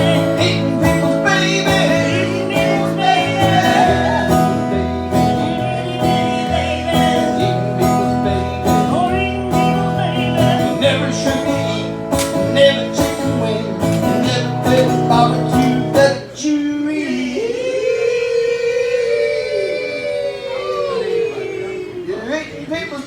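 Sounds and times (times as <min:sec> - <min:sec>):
acoustic guitar strumming: 0:00.0 - 0:16.6
man singing: 0:00.0 - 0:18.3.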